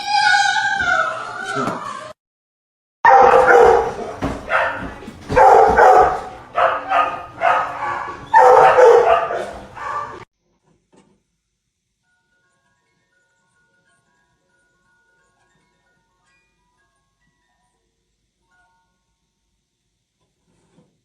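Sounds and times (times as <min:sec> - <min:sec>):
dog barking: 0:03.0 - 0:10.3.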